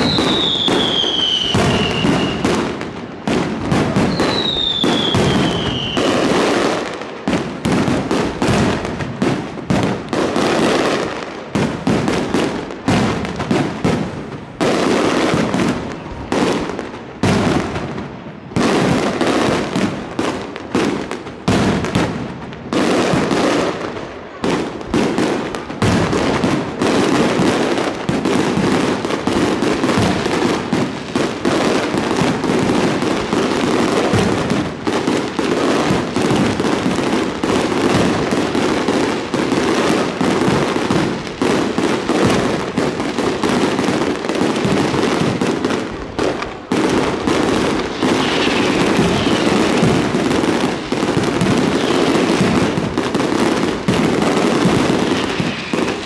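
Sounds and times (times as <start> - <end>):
firework shells bursting: 44.0 - 56.0.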